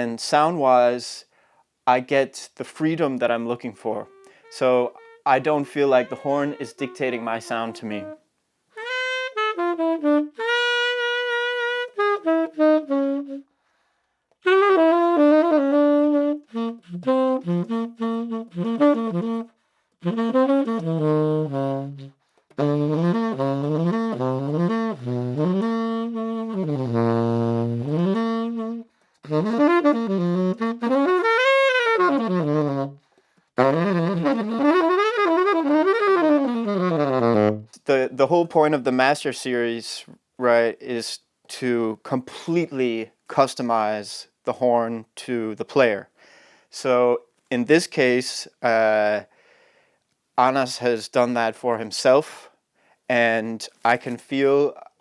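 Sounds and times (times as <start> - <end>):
solo jazz saxophone: 2.7 - 38.2.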